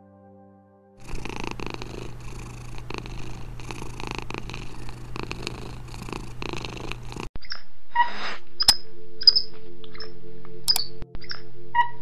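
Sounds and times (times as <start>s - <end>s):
cat purring: 1.0s - 7.3s.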